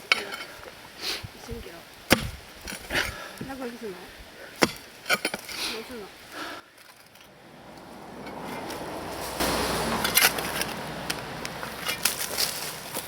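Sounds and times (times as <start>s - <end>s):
soil and stones scraping: 0.0s - 13.0s
stones knocking: 4.6s - 5.6s.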